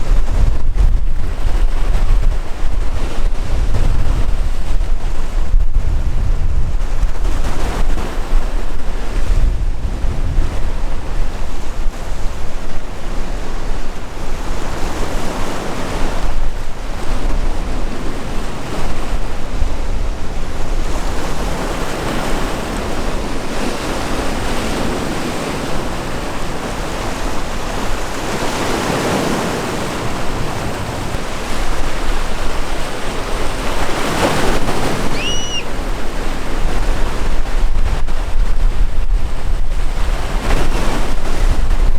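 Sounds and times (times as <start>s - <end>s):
sea waves crashing: 0.0s - 41.9s
wind buffeting microphone: 0.0s - 41.9s
high chirp: 35.1s - 35.7s.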